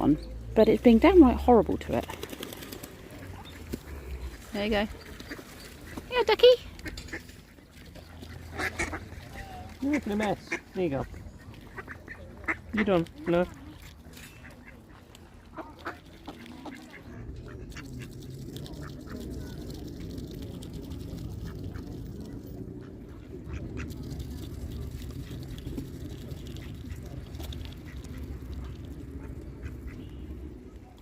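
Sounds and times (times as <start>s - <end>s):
steady low rumble: 0.0s - 31.0s
duck quacking: 8.4s - 10.8s.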